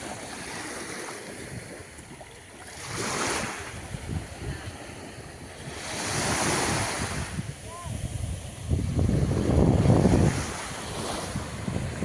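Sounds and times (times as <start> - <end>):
waves washing onto beach: 0.0 - 12.0
wind buffeting microphone: 2.8 - 12.0.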